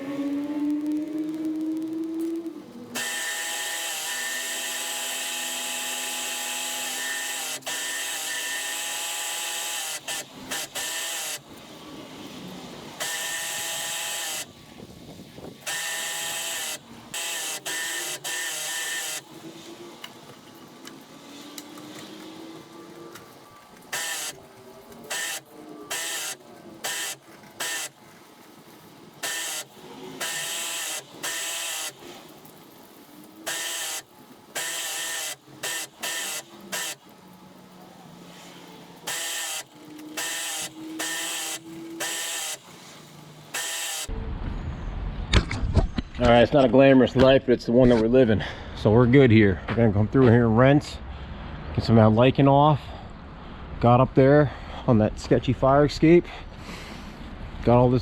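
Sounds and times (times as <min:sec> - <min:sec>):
pump running: 0:03.0 - 0:12.3, 0:15.6 - 0:20.4, 0:23.7 - 0:37.3, 0:38.1 - 0:44.1.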